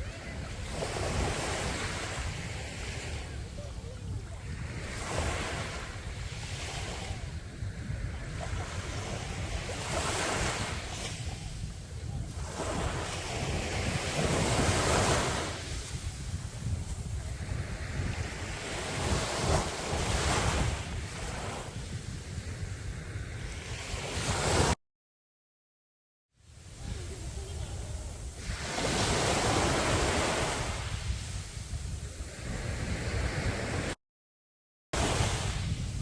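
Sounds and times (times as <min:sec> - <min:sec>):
sea waves breaking: 0:00.0 - 0:21.8, 0:26.6 - 0:31.6, 0:35.0 - 0:36.0
wind rumble on microphone: 0:00.0 - 0:24.8, 0:26.5 - 0:34.0, 0:35.0 - 0:36.0.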